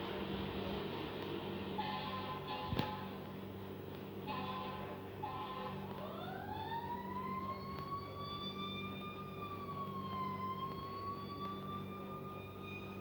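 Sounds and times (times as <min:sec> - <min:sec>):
steady low hum: 0:00.0 - 0:13.0
fire truck siren wailing: 0:04.3 - 0:13.0.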